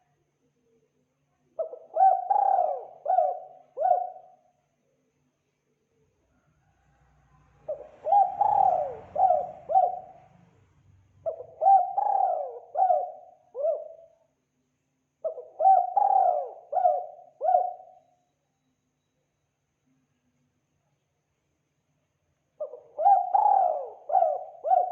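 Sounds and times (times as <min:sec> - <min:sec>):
dove cooing: 0:01.6 - 0:04.4, 0:07.6 - 0:10.3, 0:11.2 - 0:14.1, 0:15.2 - 0:18.0, 0:22.6 - 0:24.9.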